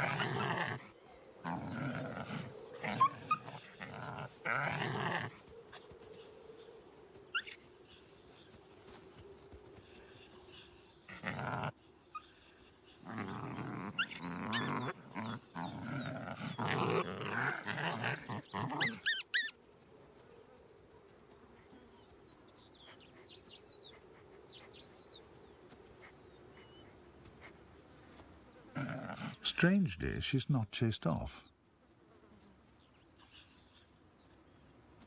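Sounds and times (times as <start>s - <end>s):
jackals growling and snarling: 0.0s - 5.9s, 10.8s - 19.5s, 28.7s - 29.8s.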